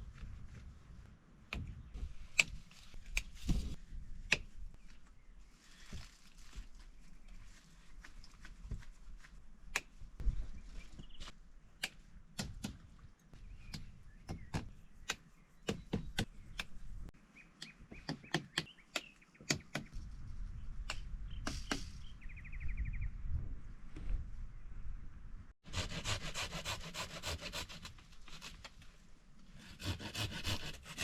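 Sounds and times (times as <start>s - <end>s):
wood being chopped: 11.8s - 12.9s
bird chirping: 13.4s - 23.2s.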